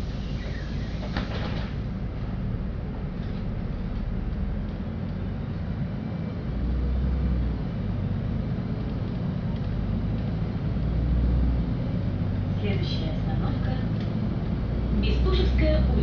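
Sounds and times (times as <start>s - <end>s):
bus engine rumble: 0.0s - 16.0s.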